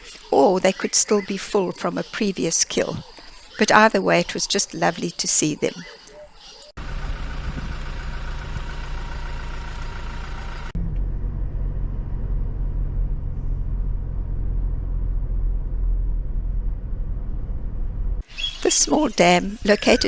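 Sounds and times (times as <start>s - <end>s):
car engine and road noise: 6.7s - 18.4s
heavy muffled rumble: 6.8s - 18.3s.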